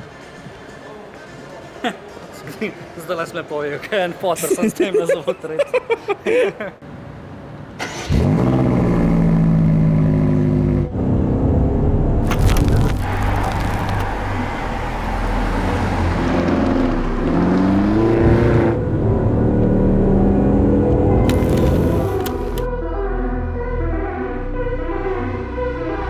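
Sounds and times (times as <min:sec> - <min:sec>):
car engine revving through gears: 0:07.8 - 0:22.7.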